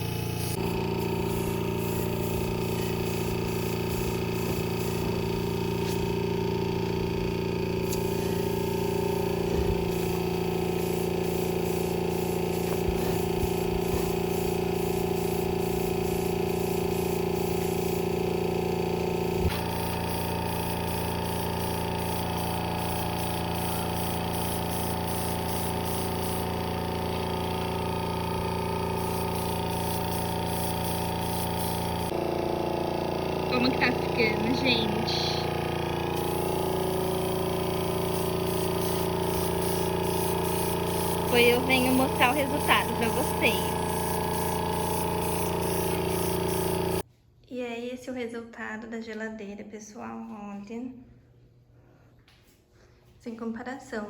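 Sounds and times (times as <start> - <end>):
spray gun hiss: 0.0 - 47.0
air compressor humming: 0.0 - 47.1.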